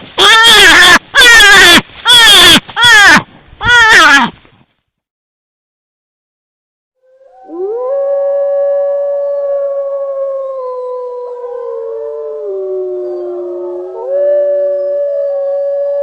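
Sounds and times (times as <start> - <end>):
animals howling: 7.0 - 16.0.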